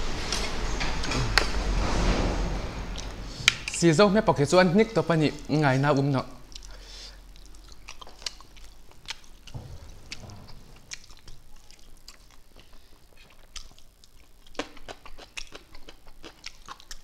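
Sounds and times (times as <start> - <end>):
wet chewing: 6.4 - 17.0.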